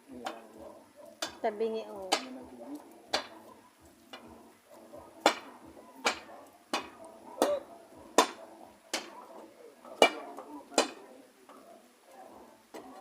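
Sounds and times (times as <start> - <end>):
hammer striking wood: 1.2 - 1.4, 3.1 - 3.3, 5.2 - 7.6, 8.2 - 9.2, 10.0 - 11.0.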